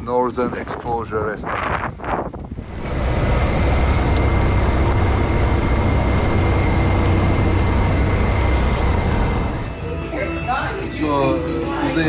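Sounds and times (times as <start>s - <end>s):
wind rush: 0.0s - 10.2s
motorcycle engine drone: 2.5s - 10.8s
faint steady whine: 2.7s - 10.2s.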